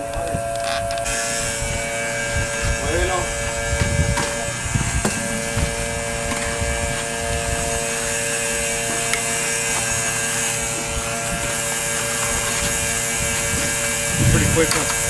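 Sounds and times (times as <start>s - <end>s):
electric water pump humming: 0.0s - 15.0s.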